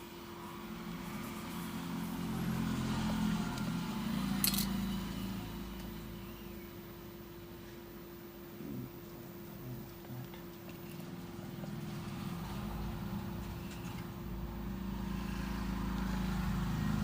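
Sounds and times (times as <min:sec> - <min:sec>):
steady hum: 0:00.0 - 0:17.0
vehicle engine passing by: 0:00.4 - 0:06.2, 0:11.0 - 0:17.0.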